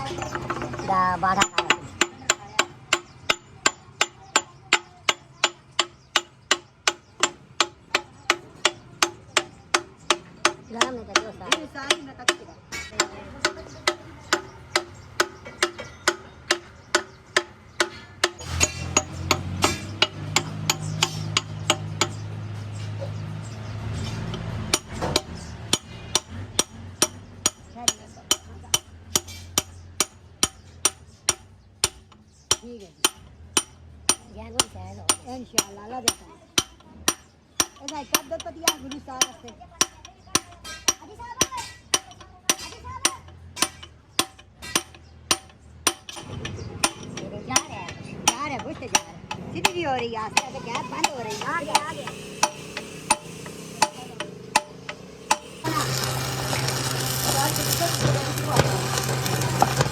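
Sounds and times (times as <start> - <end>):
hammer striking metal: 0.1 - 22.4, 24.2 - 59.9
hammer blows on metal: 36.1 - 59.9
steady low hum: 50.5 - 59.9.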